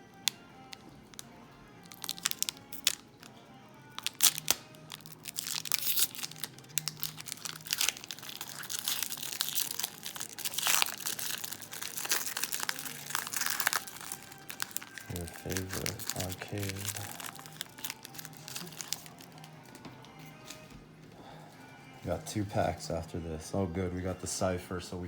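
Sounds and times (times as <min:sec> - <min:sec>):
quiet background music: 0:00.0 - 0:25.0
wrapper crinkling and tearing: 0:00.7 - 0:03.3, 0:03.9 - 0:19.8.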